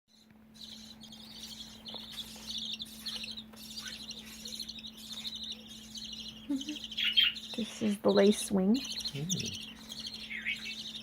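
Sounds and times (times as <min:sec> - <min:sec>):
faint low hum: 0:00.1 - 0:11.0
budgerigars chirping: 0:00.2 - 0:11.0.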